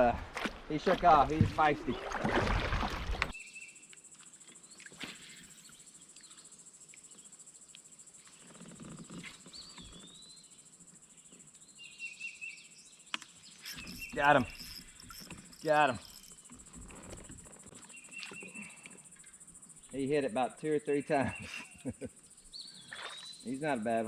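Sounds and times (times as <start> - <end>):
insect drone: 0.7 - 24.0
bird chirps: 11.3 - 16.5, 17.8 - 20.2, 21.1 - 23.6.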